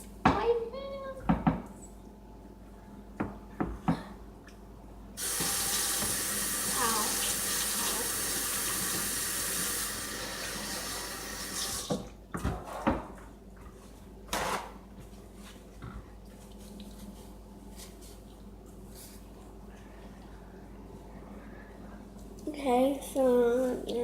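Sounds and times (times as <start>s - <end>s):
tap water running into sink: 5.2s - 12.0s.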